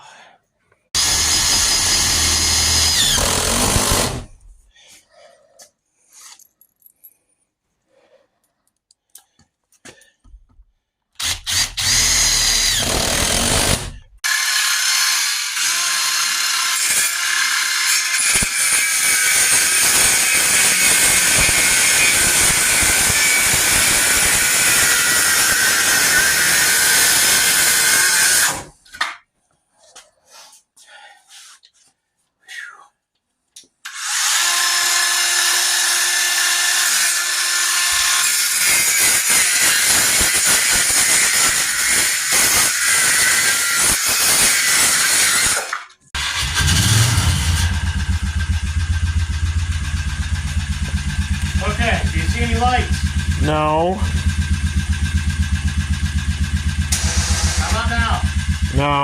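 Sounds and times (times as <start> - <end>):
power drill whining: 1.0 - 4.4, 11.2 - 28.7, 33.9 - 38.7, 40.3 - 48.4, 56.7 - 58.6.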